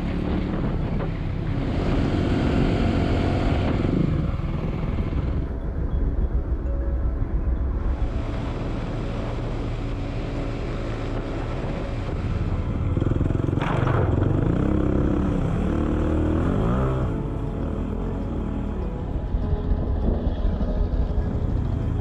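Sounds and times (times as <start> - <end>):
motorcycle engine revving: 0.0 - 5.6, 8.1 - 18.8.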